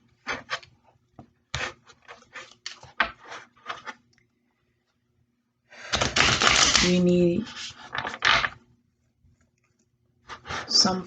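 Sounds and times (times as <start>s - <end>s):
cards being shuffled: 6.0s - 8.4s.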